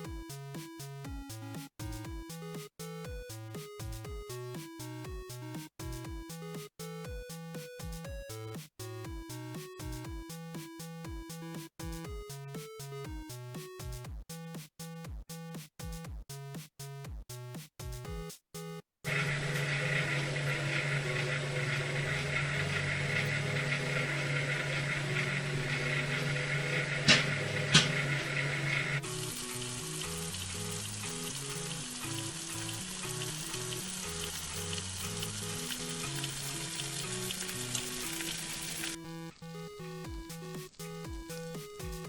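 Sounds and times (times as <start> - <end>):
background music: 0.0 - 42.0
microwave oven humming: 19.1 - 39.0
fish sizzling and hissing: 29.0 - 39.0.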